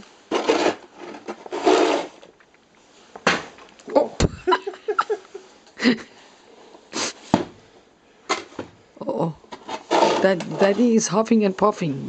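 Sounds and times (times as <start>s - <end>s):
metal shovel scraping snow: 0.3s - 2.2s, 9.7s - 10.9s.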